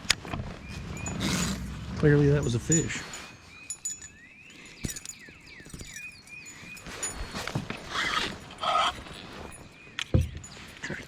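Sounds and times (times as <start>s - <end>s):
rustle: 0.0s - 4.2s, 4.8s - 11.0s
bird chirping: 0.4s - 7.6s.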